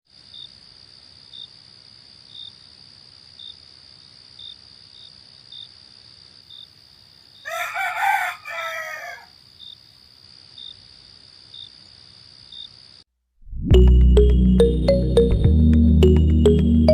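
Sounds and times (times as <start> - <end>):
insect chirps: 0.1 - 13.1
high insect whine: 3.4 - 13.0
rooster crowing: 7.4 - 9.4.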